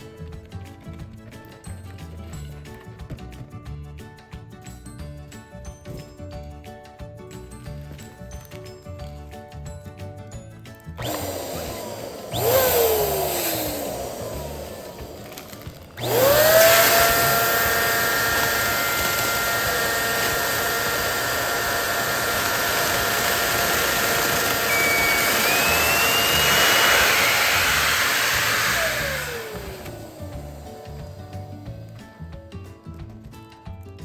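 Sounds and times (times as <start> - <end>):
balloon pump motor whine: 11.0 - 32.2
rising high whistle: 24.6 - 29.1.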